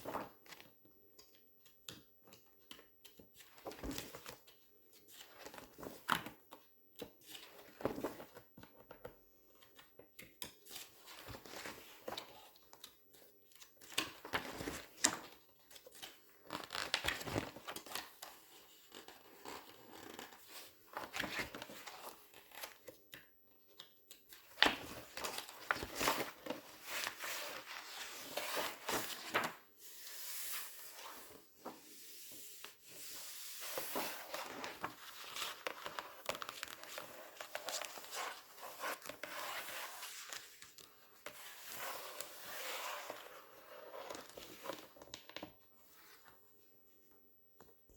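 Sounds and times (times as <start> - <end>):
magazine pages swishing and crinkling: 24.5 - 40.7.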